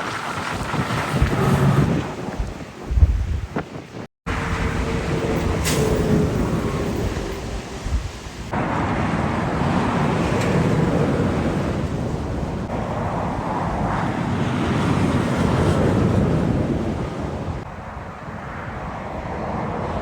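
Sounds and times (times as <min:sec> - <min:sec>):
wind buffeting microphone: 0:00.0 - 0:20.0
truck engine rumble: 0:01.1 - 0:13.9.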